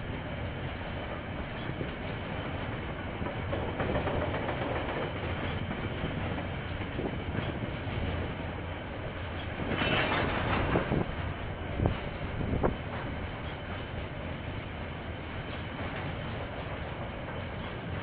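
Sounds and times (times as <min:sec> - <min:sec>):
freight wagons clickety-clack: 0:00.1 - 0:18.0
sharp clanks: 0:09.4 - 0:11.1.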